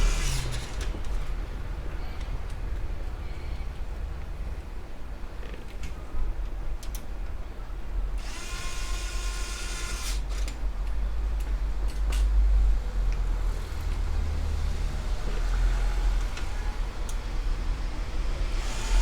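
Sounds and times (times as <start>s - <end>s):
electric screwdriver whine: 0.0s - 0.8s, 8.2s - 10.2s.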